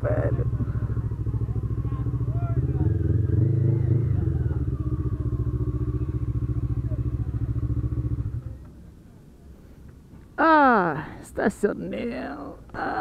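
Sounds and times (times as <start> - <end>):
motorcycle engine idling: 0.0 - 9.0.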